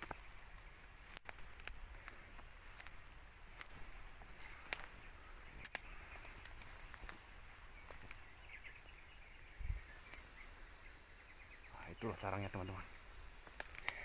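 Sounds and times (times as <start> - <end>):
faint bird chirps: 0.0 - 14.0
sharp clicks and snaps: 1.0 - 3.0, 3.6 - 4.9, 5.6 - 7.3, 13.2 - 14.0.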